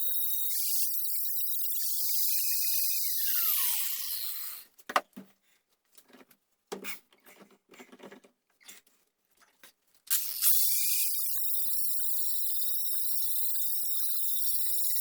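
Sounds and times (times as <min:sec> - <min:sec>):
power tool whining: 0:00.0 - 0:04.6, 0:10.1 - 0:15.0.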